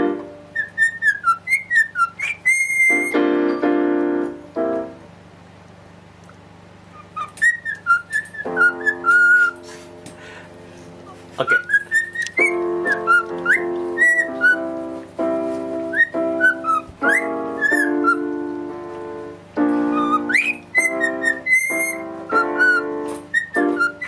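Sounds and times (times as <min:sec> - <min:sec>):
sustained keyboard chords: 0:00.0 - 0:01.5, 0:02.8 - 0:24.0
cockatiel whistling a tune: 0:00.1 - 0:03.2, 0:06.9 - 0:09.6, 0:11.4 - 0:14.8, 0:15.8 - 0:18.6, 0:19.7 - 0:24.0.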